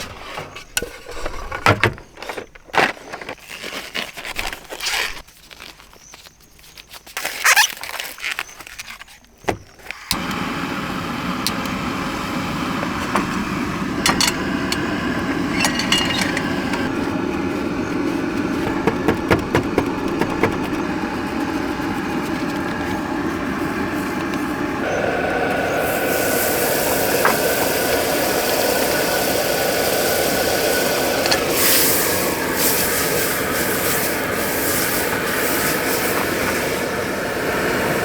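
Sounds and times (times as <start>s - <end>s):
vehicle running: 10.2s - 38.0s
handling sounds: 12.8s - 24.9s
clicks and rattles: 14.1s - 16.9s.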